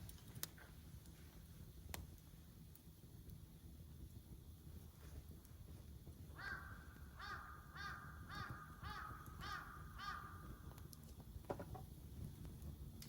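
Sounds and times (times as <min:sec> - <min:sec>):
crow cawing: 0:06.4 - 0:10.5.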